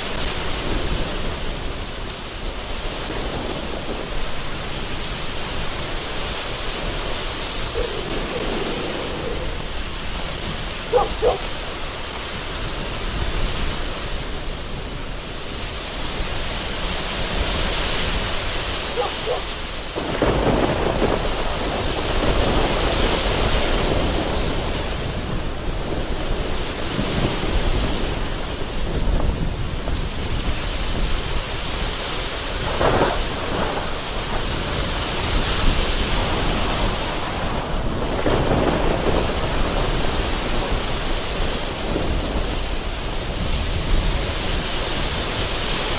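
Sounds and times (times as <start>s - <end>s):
gusty wind: 0.0s - 45.9s
heavy rain hitting a window: 0.0s - 45.9s
thunder rolling: 2.9s - 12.0s, 18.2s - 29.9s, 32.5s - 44.7s.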